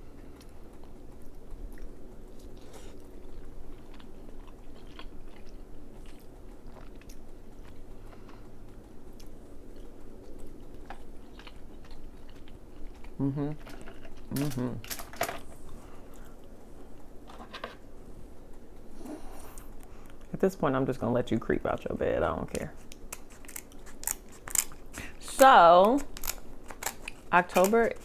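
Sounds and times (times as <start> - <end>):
person chewing: 0.1 - 20.3, 22.8 - 25.2, 26.0 - 28.0.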